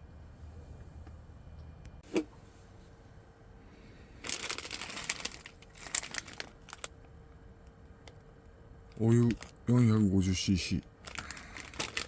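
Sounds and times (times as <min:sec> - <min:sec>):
plastic packaging crinkling: 0:04.2 - 0:06.9, 0:11.0 - 0:12.0.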